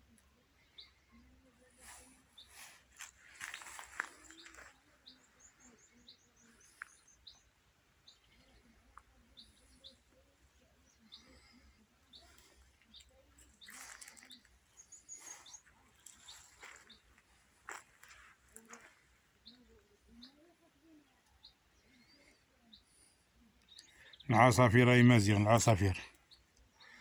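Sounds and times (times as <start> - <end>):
small birds chirping: 0.0 - 27.0
rustling: 13.4 - 14.6.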